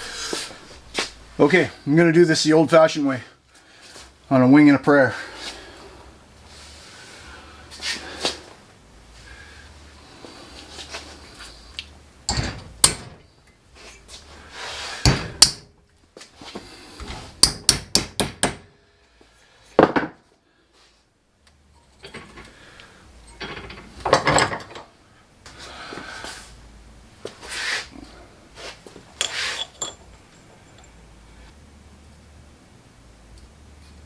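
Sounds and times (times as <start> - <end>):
hammer striking metal bracket: 12.3 - 13.3, 15.0 - 15.7, 17.4 - 18.7
clattering handling noise: 12.3 - 14.4, 21.6 - 25.0, 28.6 - 31.0.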